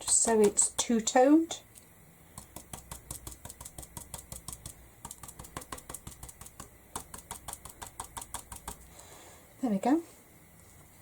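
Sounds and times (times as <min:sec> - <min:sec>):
stippling brush tapping on canvas: 0:00.0 - 0:01.0, 0:02.3 - 0:08.9.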